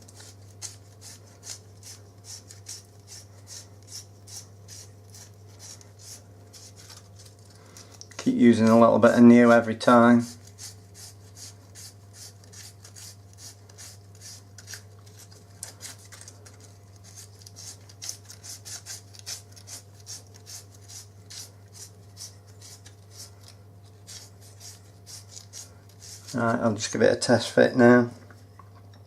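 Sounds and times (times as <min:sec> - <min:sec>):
steady low hum: 0:00.0 - 0:29.0
sandpaper scratchy rubbing: 0:10.2 - 0:15.3, 0:17.0 - 0:23.3, 0:24.1 - 0:26.5.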